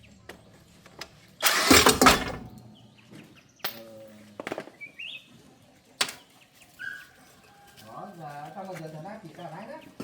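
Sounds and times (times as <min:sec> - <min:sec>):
tractor engine cranking: 0:01.4 - 0:02.6.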